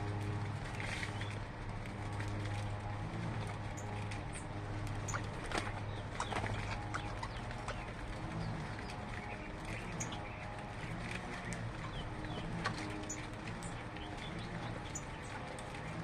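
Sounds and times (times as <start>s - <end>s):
low hum: 0.0s - 16.0s
birds chirping: 0.2s - 16.0s.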